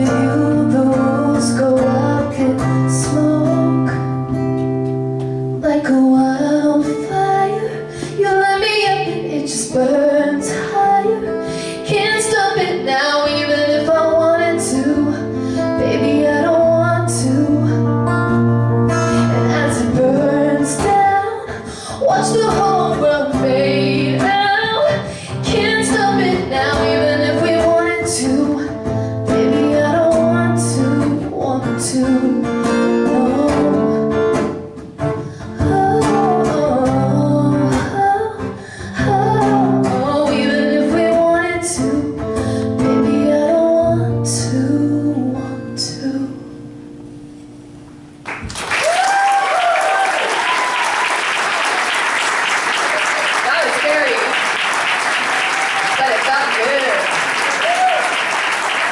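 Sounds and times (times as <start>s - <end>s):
woman singing: 0.0s - 4.4s, 5.5s - 18.5s, 19.1s - 46.7s
acoustic guitar strumming: 0.0s - 48.3s.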